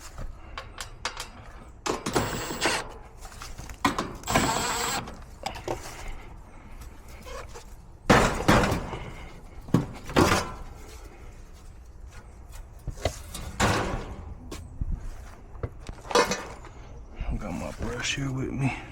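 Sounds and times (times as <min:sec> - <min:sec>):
tools and metal parts clattering: 0:00.0 - 0:06.1, 0:11.6 - 0:14.4, 0:15.9 - 0:17.0.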